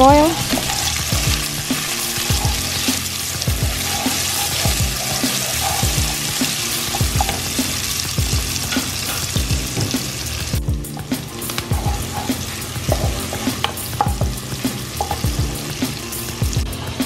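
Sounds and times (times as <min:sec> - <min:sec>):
background music beat: 0:00.0 - 0:17.0
onion sizzling in oil: 0:00.0 - 0:17.0
wooden spoon stirring: 0:00.3 - 0:08.0, 0:11.0 - 0:14.2.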